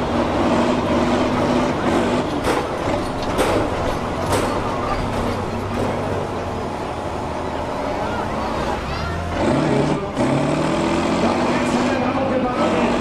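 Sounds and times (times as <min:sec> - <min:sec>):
tractor diesel engine running: 0:00.0 - 0:13.0
sharp knocks: 0:02.4 - 0:06.1.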